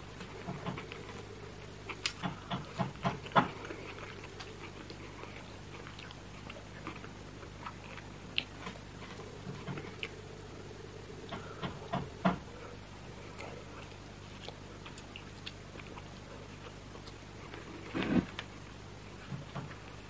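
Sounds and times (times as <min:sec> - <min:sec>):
faint steady hum: 0:00.0 - 0:20.0
wet chewing and lip smacking: 0:01.9 - 0:10.2.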